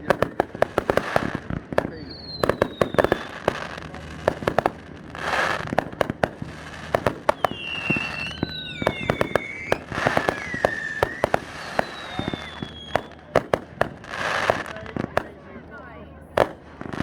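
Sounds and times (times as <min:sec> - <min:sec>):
fireworks whistling: 0:00.0 - 0:15.5, 0:16.3 - 0:17.0
fireworks bangs: 0:00.0 - 0:17.0
hissing rush: 0:05.6 - 0:14.7.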